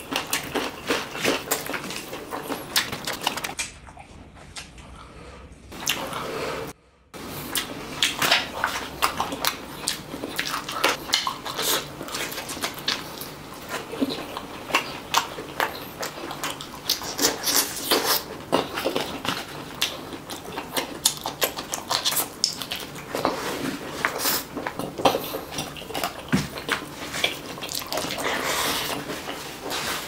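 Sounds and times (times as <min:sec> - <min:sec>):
fingers squishing in food: 0:00.0 - 0:04.8
wet chewing and lip-smacking: 0:00.0 - 0:05.0, 0:05.7 - 0:06.2, 0:07.3 - 0:30.0.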